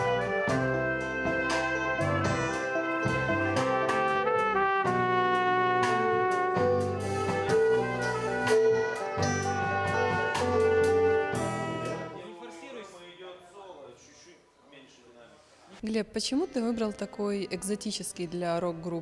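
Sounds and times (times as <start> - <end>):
rock band playing live: 0.0 - 12.2.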